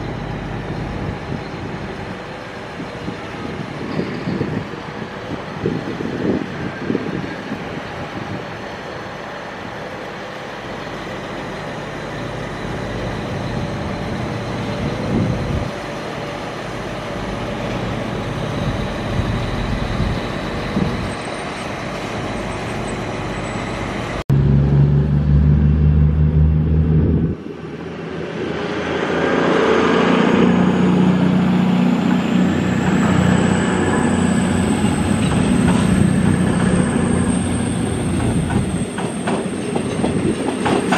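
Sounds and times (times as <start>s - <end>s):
diesel train engine rumble: 0.0s - 40.9s
heavy low train hum: 0.0s - 40.9s
train passing with rising whine: 0.0s - 40.9s.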